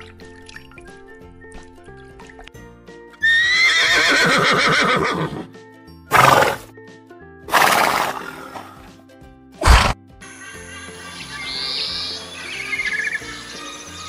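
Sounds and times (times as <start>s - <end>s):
background music: 0.0s - 14.0s
horse whinnying: 3.2s - 5.5s, 6.1s - 6.7s, 7.5s - 8.6s.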